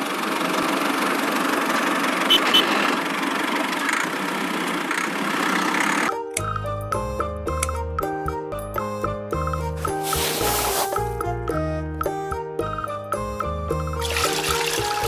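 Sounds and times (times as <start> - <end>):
music: 6.0 - 15.0.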